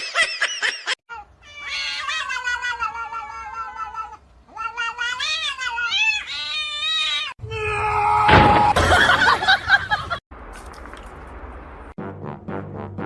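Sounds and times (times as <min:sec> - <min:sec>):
cat yowling: 0:01.1 - 0:08.3.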